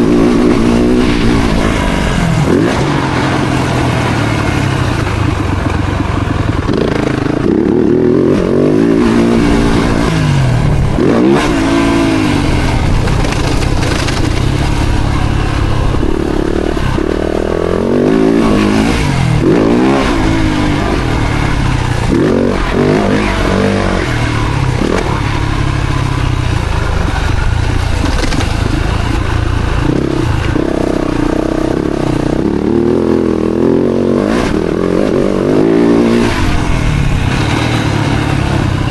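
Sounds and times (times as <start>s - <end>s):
low rumble and rattle: 0.0s - 38.9s
motocross bike engine revving: 0.0s - 38.9s.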